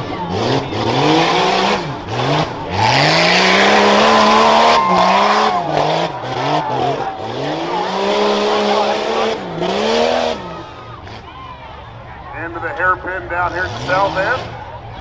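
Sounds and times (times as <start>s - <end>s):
engine revving hard: 0.0s - 11.2s.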